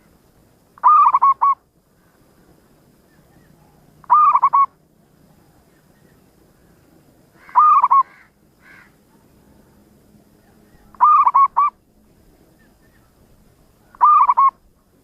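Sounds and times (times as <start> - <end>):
dove cooing: 0.8 - 1.6, 3.2 - 5.6, 7.4 - 8.3, 10.4 - 11.8, 13.8 - 14.7.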